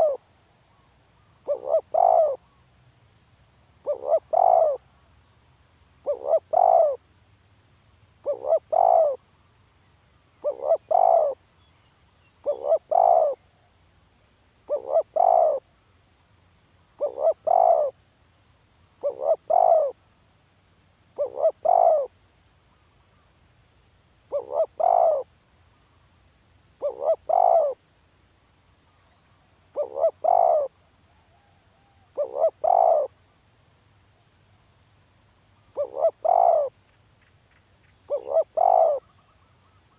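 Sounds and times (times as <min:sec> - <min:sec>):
dove cooing: 0:00.0 - 0:00.2, 0:01.4 - 0:02.4, 0:03.8 - 0:04.8, 0:06.0 - 0:07.0, 0:08.2 - 0:09.2, 0:10.4 - 0:11.4, 0:12.4 - 0:13.4, 0:14.7 - 0:15.7, 0:17.0 - 0:18.0, 0:19.0 - 0:20.0, 0:21.2 - 0:22.1, 0:24.3 - 0:25.3, 0:26.8 - 0:27.8, 0:29.7 - 0:33.2, 0:35.7 - 0:36.8, 0:38.1 - 0:39.9.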